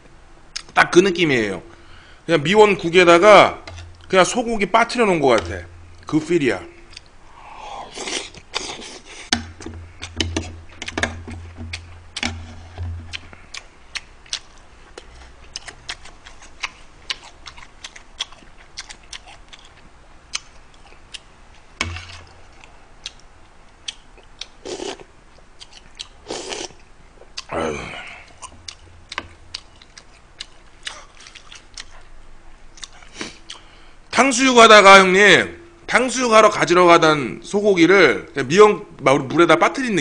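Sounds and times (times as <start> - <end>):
person chewing food: 6.8 - 32.1, 32.7 - 33.8
breathy swells: 7.2 - 8.0, 27.5 - 28.4.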